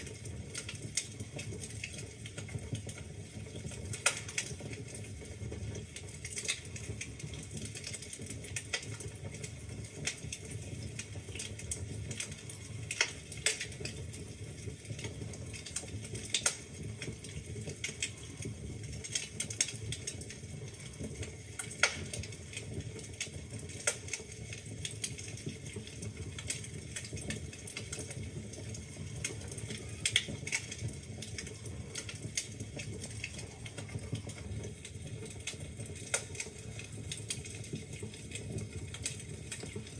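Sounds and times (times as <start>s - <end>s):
fire crackling: 0.0s - 39.9s
fire flames rumbling: 0.0s - 39.9s
logs popping: 7.6s - 14.0s, 14.8s - 39.9s.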